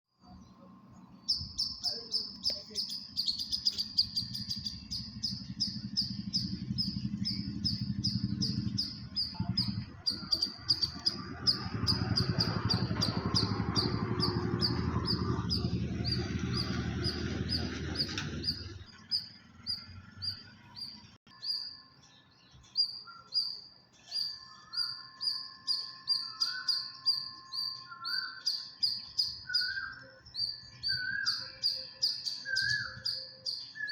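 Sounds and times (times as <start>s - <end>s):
bird chirping fast: 0.3s - 33.9s
low rumbling noise: 3.0s - 21.2s.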